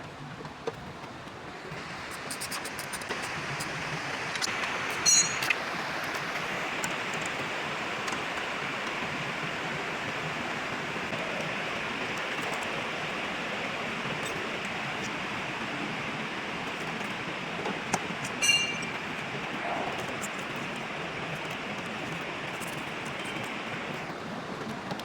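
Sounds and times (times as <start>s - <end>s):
steady hissing noise: 1.4s - 24.6s
sharp ringing clank: 5.0s - 5.6s, 18.4s - 19.0s.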